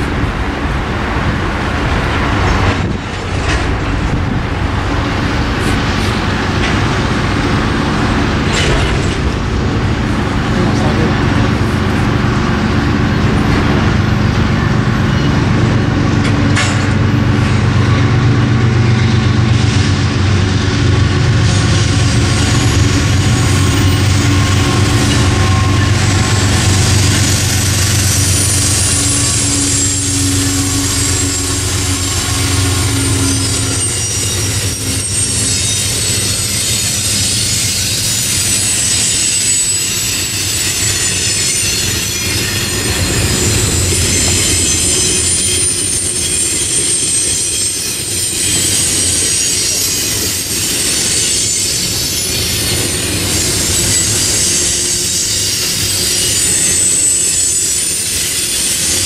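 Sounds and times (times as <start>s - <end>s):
diesel locomotive engines droning: 0.0s - 59.0s
train wheels rumbling on rails: 0.0s - 59.0s
high-pitched wheel squeal: 22.4s - 59.0s.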